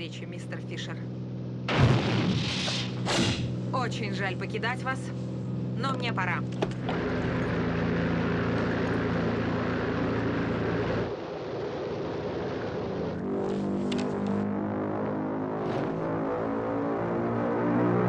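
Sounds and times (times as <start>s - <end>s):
propeller plane engine droning: 0.0s - 18.0s.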